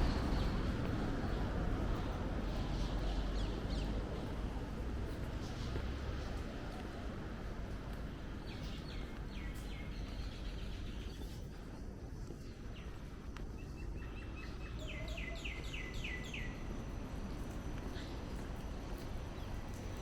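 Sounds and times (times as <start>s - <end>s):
birds chirping: 12.4s - 17.0s.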